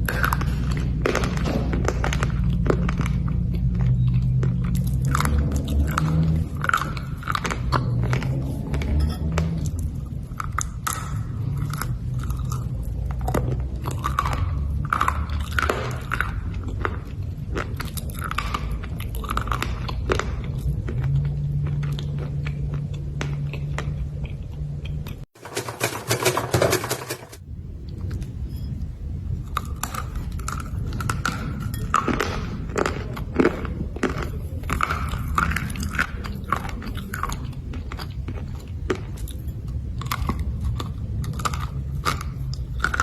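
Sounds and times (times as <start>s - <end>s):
brittle crunching chewing: 0.0s - 25.8s, 29.3s - 43.0s.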